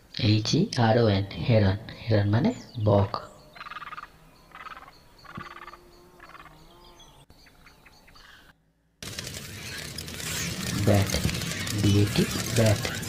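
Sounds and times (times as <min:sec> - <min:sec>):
bird rattling chatters: 0:09.0 - 0:13.0.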